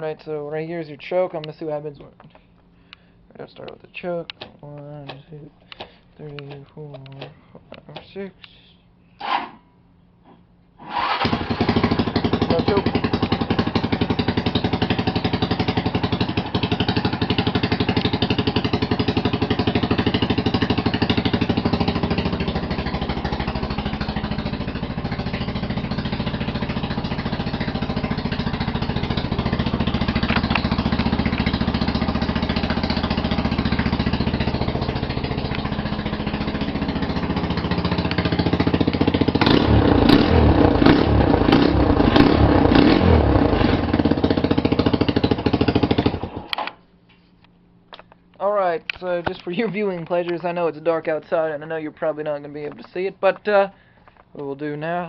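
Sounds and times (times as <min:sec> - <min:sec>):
motorcycle engine running: 0:11.1 - 0:46.5.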